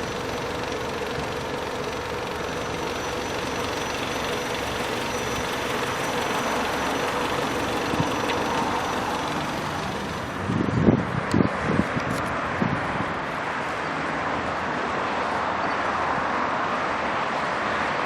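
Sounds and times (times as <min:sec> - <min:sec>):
car engine idling: 0:00.0 - 0:13.8.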